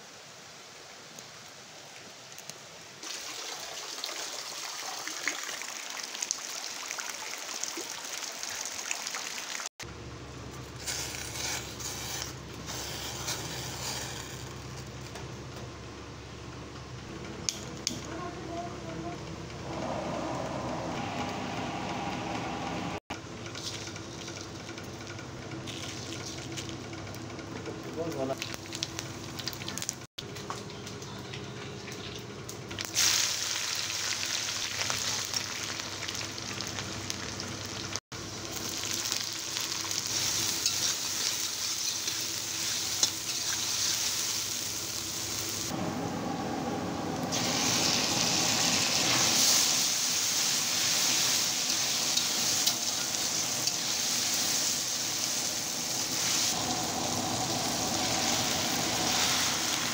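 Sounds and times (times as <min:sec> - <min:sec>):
onions sizzling in hot oil: 0:10.7 - 0:14.9, 0:28.0 - 0:30.1, 0:32.8 - 0:45.8, 0:47.3 - 0:59.9
metal spatula scraping a pan: 0:10.8 - 0:14.7.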